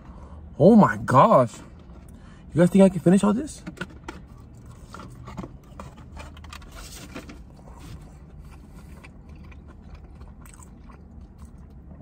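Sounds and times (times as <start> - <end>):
person chewing crunchy food: 4.2 - 12.0.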